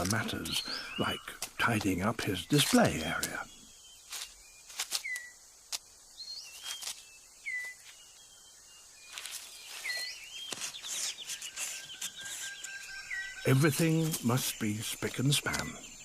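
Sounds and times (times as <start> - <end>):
leaf litter snapping and rustling: 2.5 - 3.4, 4.1 - 5.9, 6.5 - 8.0, 9.1 - 12.8.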